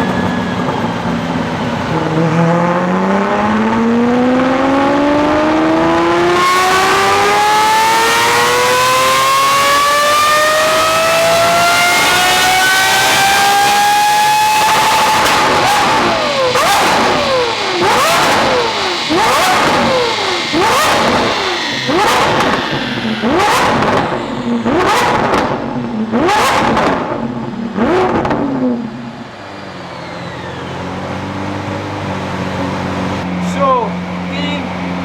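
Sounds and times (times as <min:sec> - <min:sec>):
sports car engine revving: 0:00.0 - 0:35.0
sharp exhaust crack on downshift: 0:12.8 - 0:28.9.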